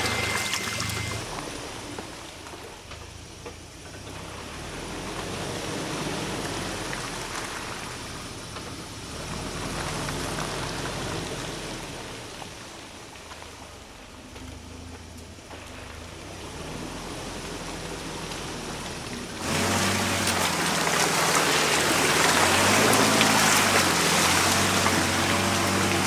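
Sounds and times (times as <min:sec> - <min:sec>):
tyres rushing through brush: 0:00.0 - 0:01.4, 0:18.4 - 0:26.0
vehicle engine idling: 0:00.0 - 0:26.0.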